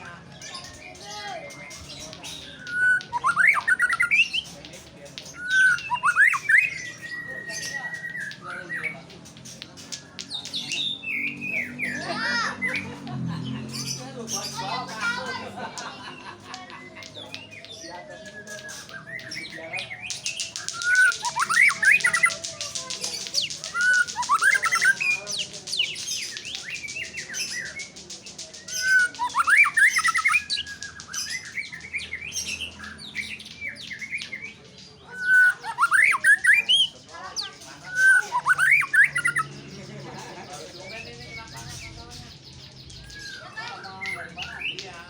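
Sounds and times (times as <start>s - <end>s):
bird singing whistled phrases: 0.4s - 4.6s, 5.3s - 9.0s, 17.3s - 27.9s, 28.6s - 37.0s, 37.8s - 39.6s.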